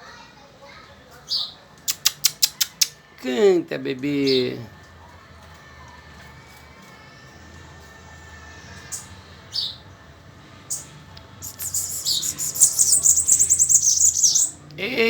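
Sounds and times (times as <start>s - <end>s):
bird trilling song: 8.8s - 9.8s, 10.7s - 14.6s
bird short high calls: 11.4s - 14.6s.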